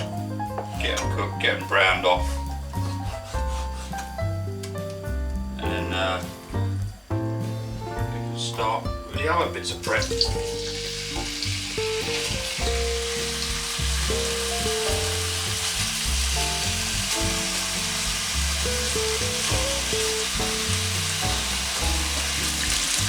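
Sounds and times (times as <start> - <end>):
background music with low notes: 0.0 - 23.0
chicken sizzling in a pan: 6.9 - 23.0.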